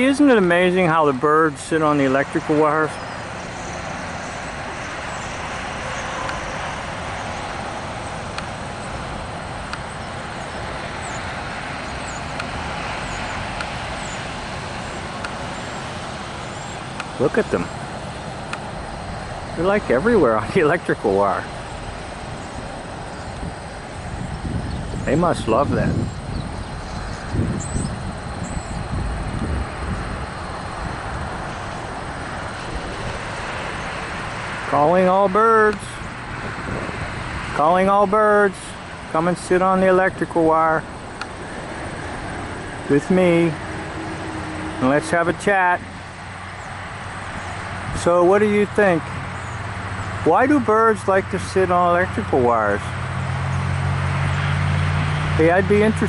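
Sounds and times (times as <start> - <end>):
small birds chirping: 0.0 - 44.2, 44.8 - 56.0
traffic noise: 0.0 - 56.0.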